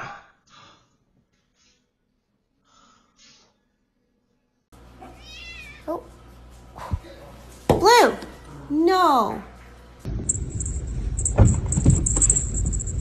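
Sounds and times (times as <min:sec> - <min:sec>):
low steady hum: 0:08.3 - 0:13.0.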